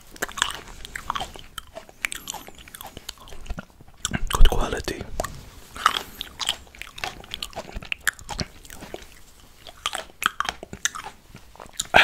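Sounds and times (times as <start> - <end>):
chewing fresh fruit: 0.0 - 12.0
mouth clicks: 0.2 - 8.6.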